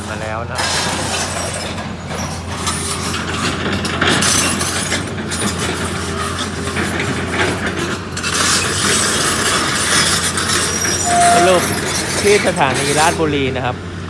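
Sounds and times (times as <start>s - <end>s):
train wheel and rail noise: 0.0s - 14.0s
low drone: 11.0s - 12.2s.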